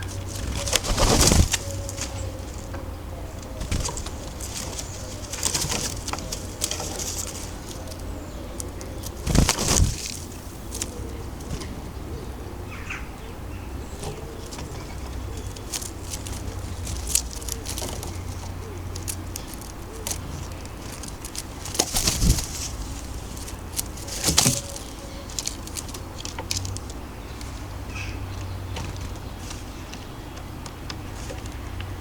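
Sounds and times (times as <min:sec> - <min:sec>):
pigeon wings flapping: 0:00.0 - 0:02.7, 0:03.3 - 0:12.1, 0:14.0 - 0:27.8.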